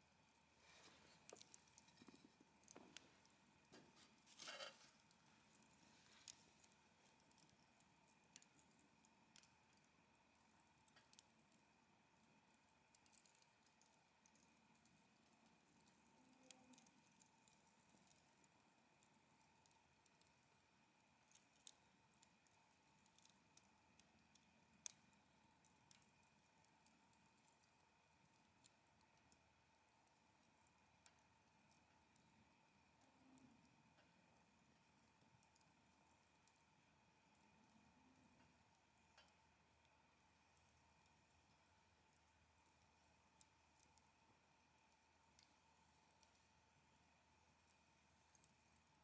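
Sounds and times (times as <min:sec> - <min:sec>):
campfire crackling: 0:00.2 - 0:44.2, 0:44.8 - 0:47.0, 0:47.6 - 0:48.9
firewood popping: 0:00.6 - 0:04.9.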